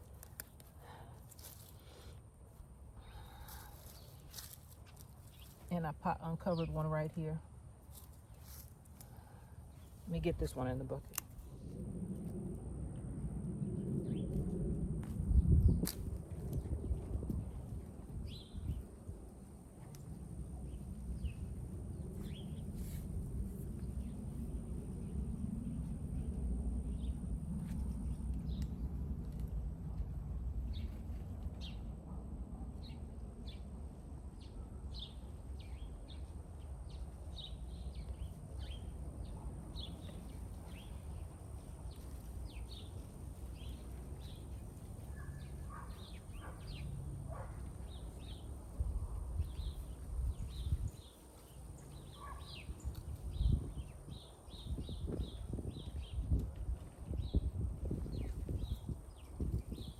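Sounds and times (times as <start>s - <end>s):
steady low rumble: 0.0s - 59.9s
small birds chirping: 3.0s - 11.6s, 16.6s - 18.9s, 19.8s - 23.0s, 34.4s - 59.9s.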